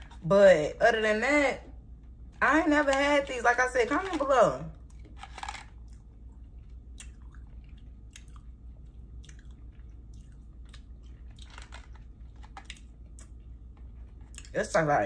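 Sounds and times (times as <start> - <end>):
person chewing candy: 4.8 - 14.6
soft chewing clicks: 5.8 - 14.6.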